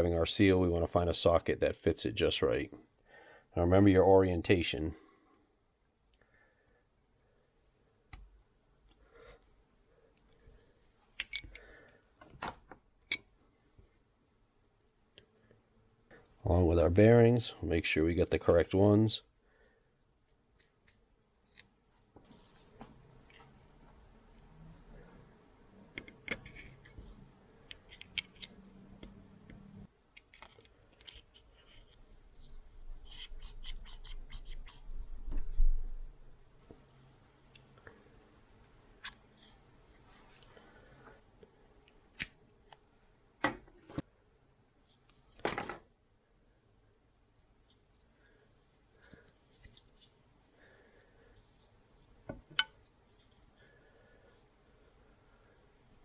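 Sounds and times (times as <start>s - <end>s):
small metal parts clinking: 11.2s - 11.6s.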